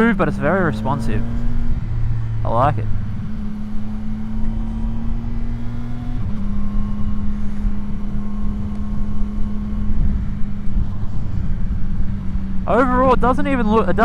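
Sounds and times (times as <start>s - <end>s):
motorcycle engine cruising: 0.0s - 14.0s.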